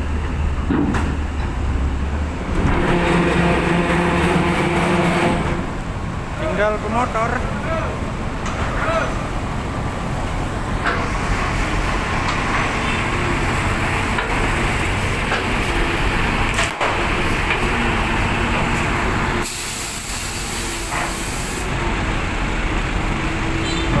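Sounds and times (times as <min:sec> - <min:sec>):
loud hiss: 0:19.4 - 0:21.7.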